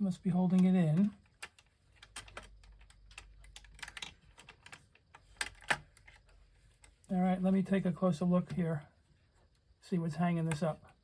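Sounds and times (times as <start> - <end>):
small metal parts clicking: 0.5 - 6.9.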